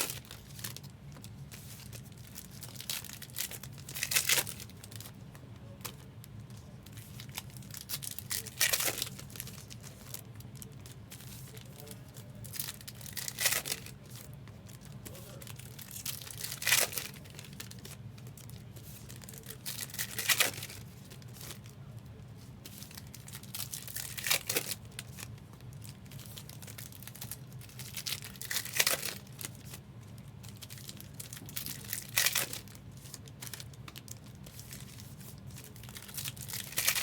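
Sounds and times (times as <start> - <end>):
card wrappers crinkling and tearing: 0.0 - 37.0.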